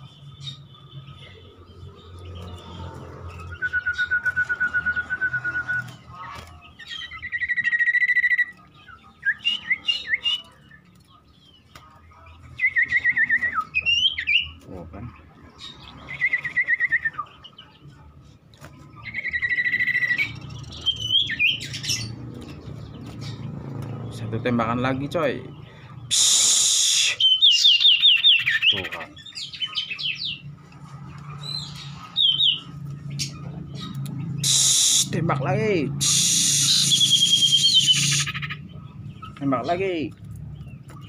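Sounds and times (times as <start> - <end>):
bird singing rapid trills: 0.0 - 18.0, 18.8 - 41.0
rising whistled bird notes: 3.4 - 5.9, 36.0 - 38.6.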